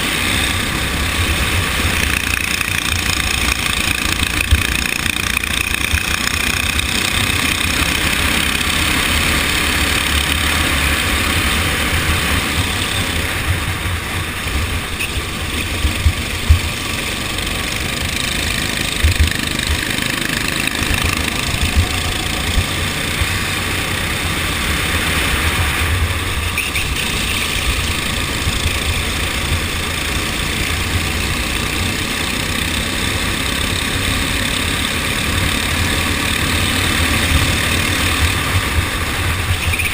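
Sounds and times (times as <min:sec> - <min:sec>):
kart engine running: 0:00.0 - 0:39.9
heavy low rumble: 0:06.4 - 0:31.2.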